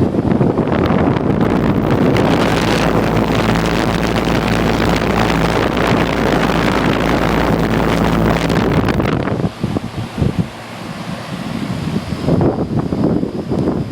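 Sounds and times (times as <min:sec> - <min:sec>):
wind buffeting microphone: 0:00.0 - 0:10.6, 0:11.4 - 0:13.9
air conditioner fan rushing: 0:00.0 - 0:13.9
low compressor hum: 0:01.2 - 0:09.2.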